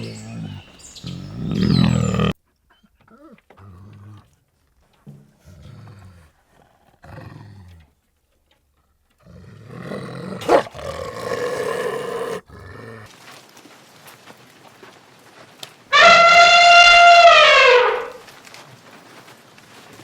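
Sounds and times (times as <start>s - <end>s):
large animal growling: 0.0s - 2.4s, 5.4s - 7.9s, 9.2s - 13.1s
large animal roaring: 0.0s - 2.4s, 9.3s - 13.1s.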